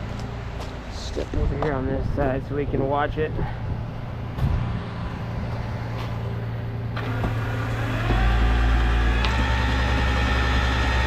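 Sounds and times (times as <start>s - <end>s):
tow truck engine: 3.6s - 11.0s
hydraulic whine: 3.9s - 11.0s.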